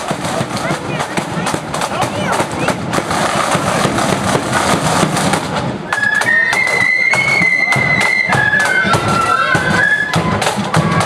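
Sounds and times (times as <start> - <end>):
drum beat: 0.0 - 11.0
high flute melody: 5.9 - 11.0.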